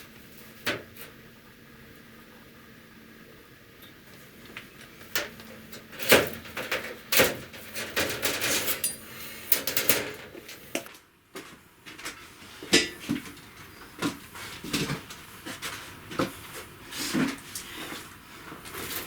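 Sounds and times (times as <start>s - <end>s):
metal tools clanking: 5.2s - 10.8s.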